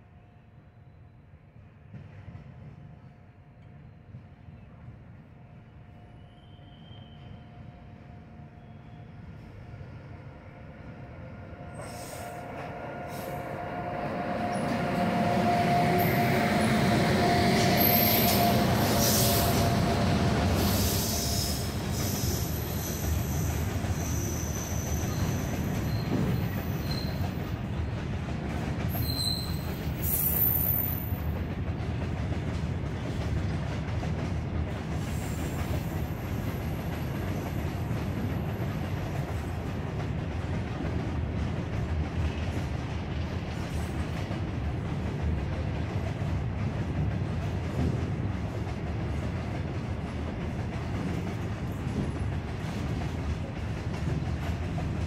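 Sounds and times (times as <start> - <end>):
electric locomotive approaching: 3.5 - 55.0
train wagons rumbling: 11.6 - 55.0
high-pitched wheel squeals: 28.9 - 30.8.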